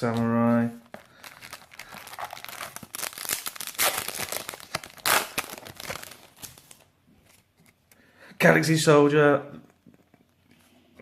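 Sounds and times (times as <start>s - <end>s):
wrapper crinkling and tearing: 0.1s - 6.9s.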